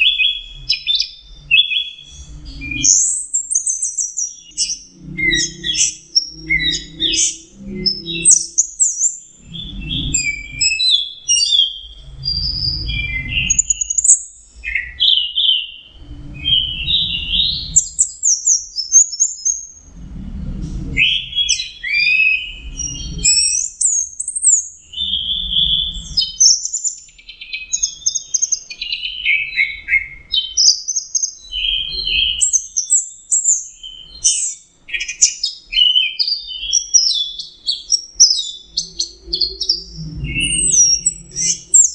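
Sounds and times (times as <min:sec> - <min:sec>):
faint low rumbles: 0:19.6 - 0:21.8.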